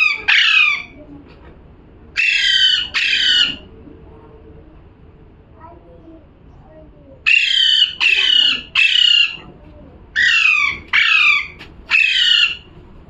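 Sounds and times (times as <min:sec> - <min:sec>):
parrot squawking: 0:00.0 - 0:01.0, 0:02.2 - 0:03.7, 0:07.2 - 0:09.5, 0:10.1 - 0:12.7.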